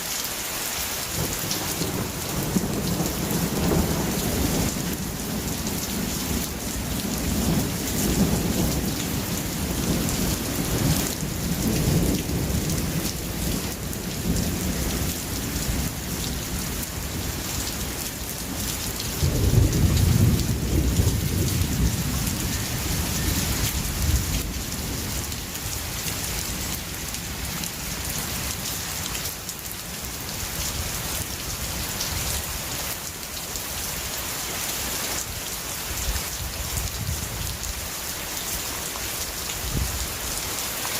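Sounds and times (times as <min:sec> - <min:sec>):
heavy rain hissing: 0:00.0 - 0:40.9
thunder rumbling: 0:18.6 - 0:25.4.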